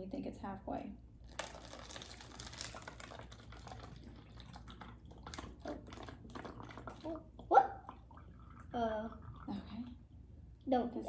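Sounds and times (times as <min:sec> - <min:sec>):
liquid trickling through funnel: 0:01.2 - 0:10.0.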